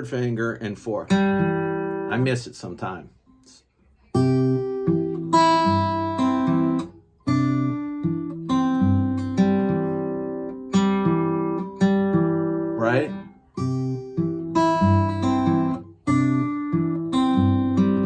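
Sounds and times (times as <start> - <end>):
person speaking: 0.0 - 1.2, 2.1 - 3.7, 12.8 - 13.2
fingerpicked acoustic guitar: 0.1 - 18.0.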